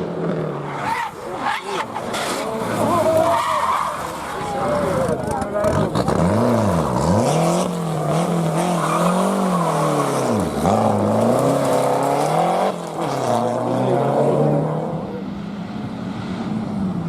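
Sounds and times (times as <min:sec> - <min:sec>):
rally car engine at high revs: 0:04.0 - 0:17.0.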